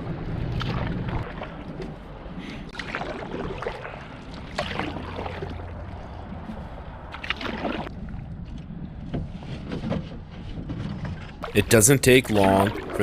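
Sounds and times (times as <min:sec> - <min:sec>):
paddle splashing in water: 0:00.3 - 0:02.1, 0:02.7 - 0:08.2, 0:10.8 - 0:13.0.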